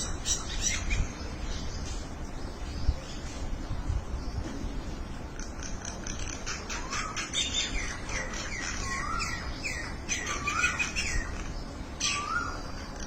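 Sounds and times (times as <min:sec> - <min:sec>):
flock of birds calling: 0:05.2 - 0:13.0.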